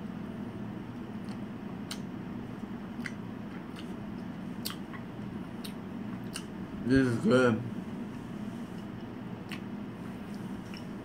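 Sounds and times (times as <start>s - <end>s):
steady low hum: 0.0s - 11.0s
mouth clicks and smacks chewing: 1.2s - 2.1s, 3.0s - 6.5s, 8.8s - 9.7s.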